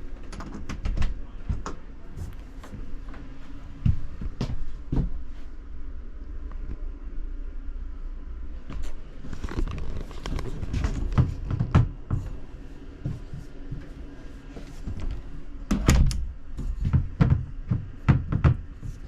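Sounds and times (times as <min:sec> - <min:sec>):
cabinet doors and latches knocking: 0:16.8 - 0:18.7.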